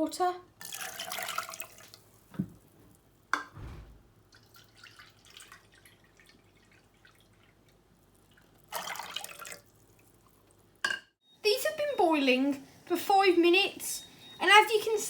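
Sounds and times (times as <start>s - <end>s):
dull thud of object set down: 3.6s - 4.1s
sharp knock: 3.6s - 4.1s
soft thump: 3.6s - 4.2s
water dripping: 4.3s - 10.6s.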